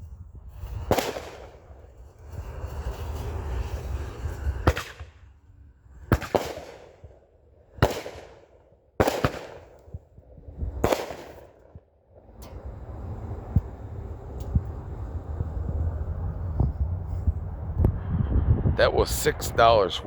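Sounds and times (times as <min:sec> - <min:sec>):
fireworks crackle and echo: 0:00.0 - 0:17.4
fireworks banging: 0:00.5 - 0:05.4, 0:06.0 - 0:10.1, 0:10.7 - 0:17.4.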